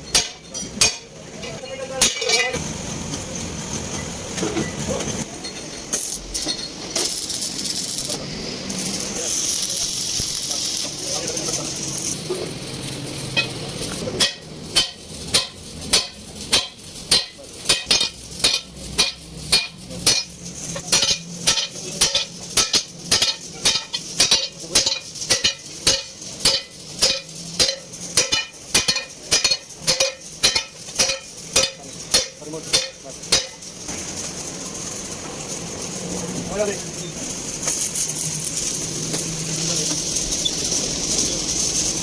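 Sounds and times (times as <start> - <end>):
hammer striking metal: 0.0 - 1.1, 13.3 - 33.7.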